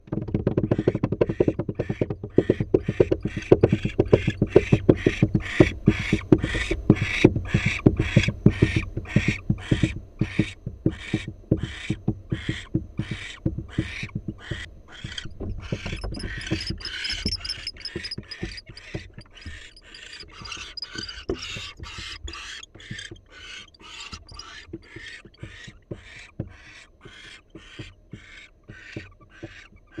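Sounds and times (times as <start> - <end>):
barn owl hissing calls: 5.1 - 25.2.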